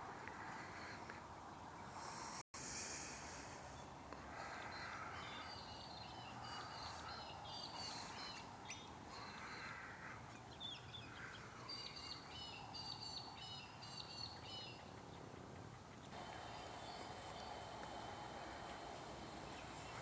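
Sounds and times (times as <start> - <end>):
birds cawing: 9.1 - 10.3, 11.0 - 11.5
birds chirping: 15.9 - 20.0.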